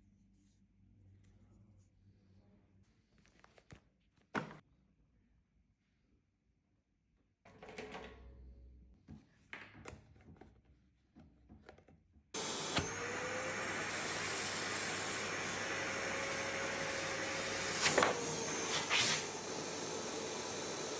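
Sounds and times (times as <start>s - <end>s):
vacuum motor running: 12.4s - 20.9s.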